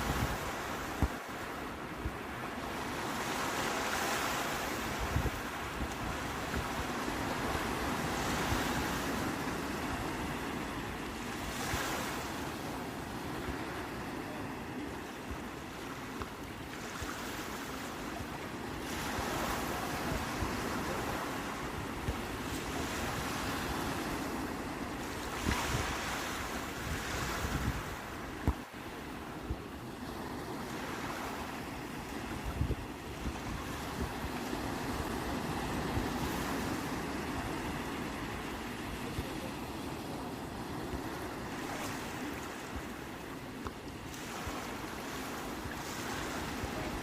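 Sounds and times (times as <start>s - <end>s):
sea waves breaking on shore: 0.0s - 47.0s
wind on microphone: 0.0s - 47.0s.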